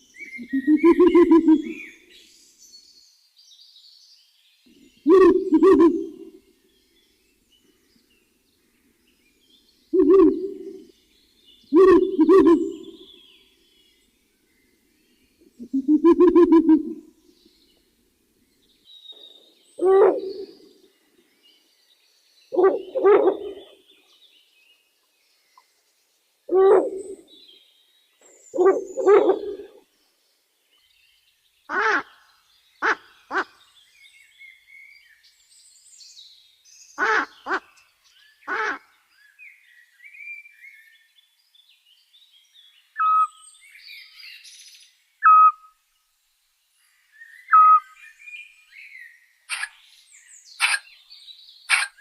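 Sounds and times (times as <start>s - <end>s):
faint small-bird chirps: 0.0s - 17.9s, 26.7s - 45.8s, 46.8s - 52.0s
owl cries: 0.4s - 1.8s, 5.1s - 6.4s, 10.0s - 10.8s, 11.8s - 13.0s, 19.8s - 20.7s, 22.6s - 23.7s, 26.5s - 27.2s, 28.6s - 29.8s, 38.5s - 38.8s, 43.0s - 43.4s, 45.2s - 45.7s, 47.5s - 48.0s, 49.5s - 49.7s, 50.6s - 50.8s, 51.7s - 52.0s
owl hooting: 0.4s - 1.8s, 5.0s - 6.4s, 10.0s - 10.9s, 11.7s - 13.1s, 15.6s - 17.0s, 19.8s - 20.8s, 22.5s - 23.8s, 26.5s - 27.3s, 28.6s - 29.8s, 43.0s - 43.3s, 45.2s - 45.7s, 47.5s - 48.0s, 49.5s - 49.7s, 50.6s - 50.8s, 51.7s - 52.0s.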